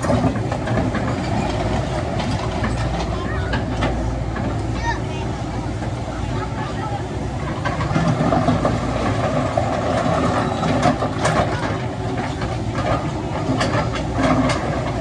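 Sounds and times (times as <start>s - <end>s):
sharp metallic clanks: 0.0s - 3.2s
diesel machinery running: 0.0s - 15.0s.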